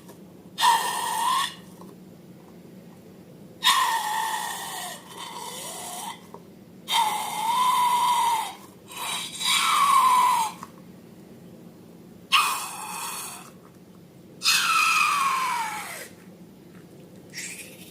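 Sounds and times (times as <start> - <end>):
air squealing out of balloon: 14.4 - 16.2.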